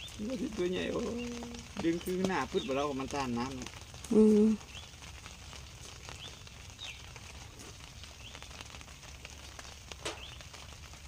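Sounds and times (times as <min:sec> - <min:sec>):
bird chirps: 0:10.2 - 0:10.4.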